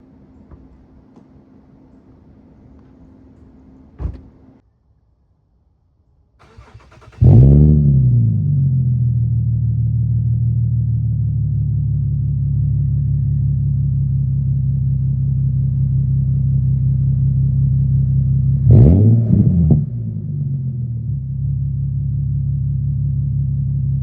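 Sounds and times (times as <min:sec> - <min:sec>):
car engine idling and revving: 0:06.4 - 0:24.0.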